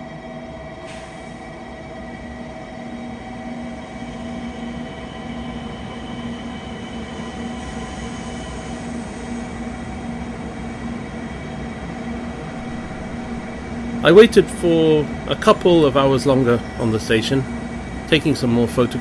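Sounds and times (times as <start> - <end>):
train rumble: 0.0 - 19.0
steady hums: 8.6 - 19.0.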